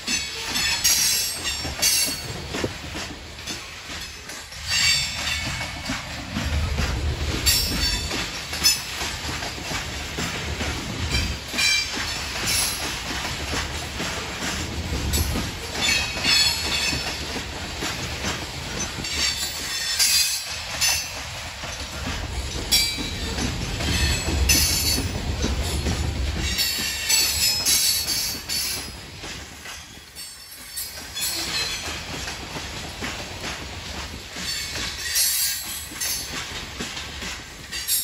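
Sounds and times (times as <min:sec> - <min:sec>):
freight train rumbling: 0:00.0 - 0:38.0
steel wheels squealing: 0:03.5 - 0:05.7, 0:15.7 - 0:17.2, 0:29.8 - 0:32.2, 0:34.4 - 0:36.4.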